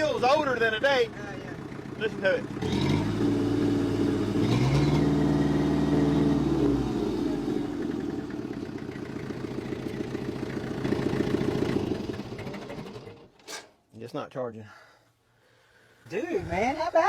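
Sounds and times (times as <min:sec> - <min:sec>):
tractor engine revving and idling: 0:00.0 - 0:13.4.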